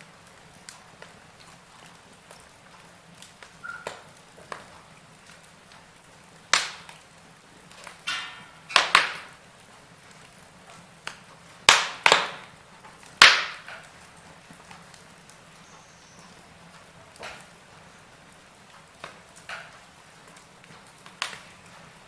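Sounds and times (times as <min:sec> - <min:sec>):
hissing crackle: 0:00.0 - 0:22.0
wood fire crackling: 0:00.0 - 0:22.0.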